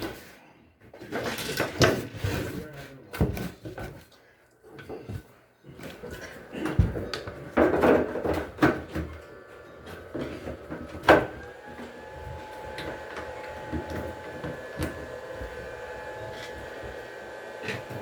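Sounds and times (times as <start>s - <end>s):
knocks and clatter of machine parts: 6.6s - 9.2s.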